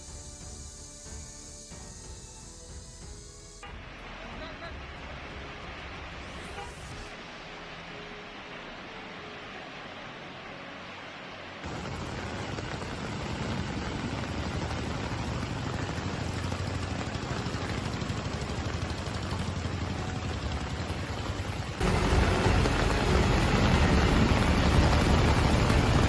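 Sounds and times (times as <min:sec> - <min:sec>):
heavy rain falling: 0:03.7 - 0:26.0.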